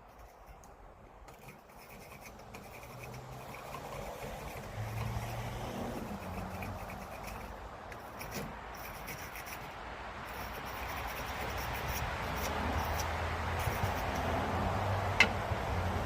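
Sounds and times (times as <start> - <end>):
scraping car battery post: 1.3 - 9.7.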